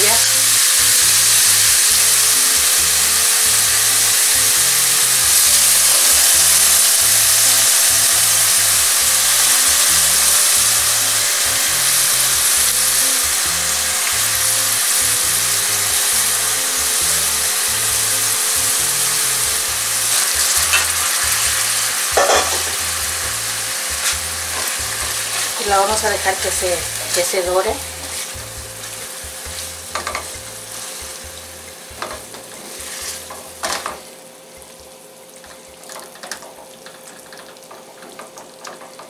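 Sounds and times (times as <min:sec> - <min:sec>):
onions sizzling in oil: 0:00.0 - 0:39.0.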